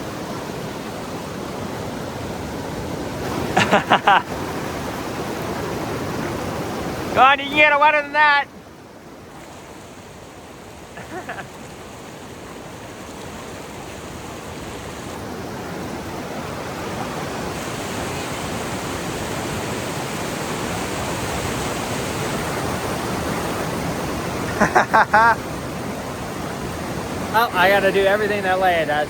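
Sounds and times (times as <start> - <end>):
river rushing: 0.0 - 29.0
person speaking: 7.1 - 8.5, 27.3 - 29.0.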